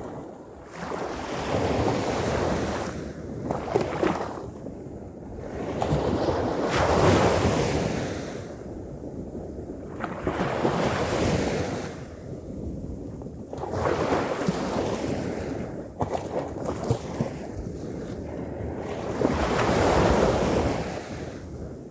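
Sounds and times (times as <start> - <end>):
wind noise: 0.0 - 21.9.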